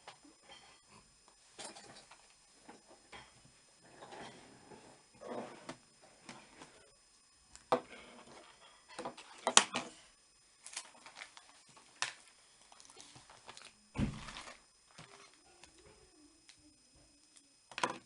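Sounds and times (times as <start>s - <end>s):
dull thump: 14.0s - 14.4s.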